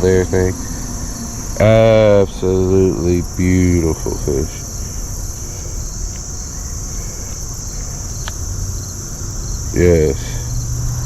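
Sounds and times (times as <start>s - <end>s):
man's voice: 0.0s - 0.8s, 1.5s - 4.7s, 9.7s - 10.5s
insects chorus: 0.0s - 11.0s.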